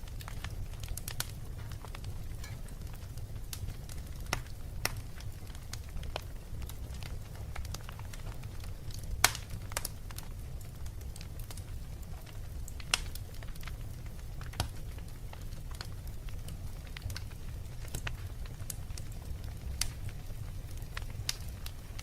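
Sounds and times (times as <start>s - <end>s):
wood fire crackling: 0.0s - 22.0s
sharp pops of fire: 0.1s - 10.3s, 10.9s - 13.6s, 14.4s - 15.9s.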